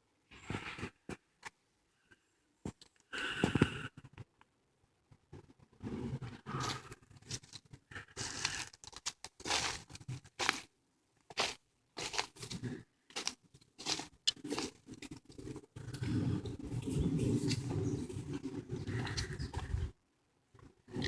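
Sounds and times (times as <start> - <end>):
footsteps crunching on path: 8.2 - 10.7, 11.3 - 15.4.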